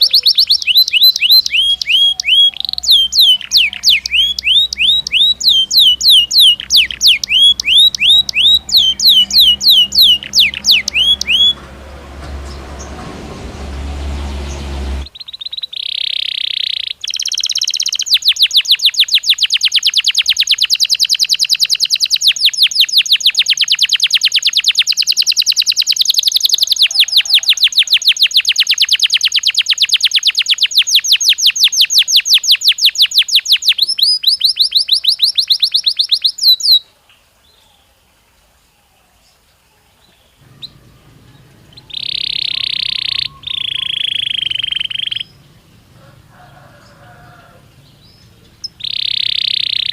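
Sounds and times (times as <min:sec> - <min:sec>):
canary whistled notes: 0:00.0 - 0:11.6, 0:40.5 - 0:45.3
canary trilling: 0:00.0 - 0:13.0, 0:13.7 - 0:36.8, 0:40.4 - 0:49.9.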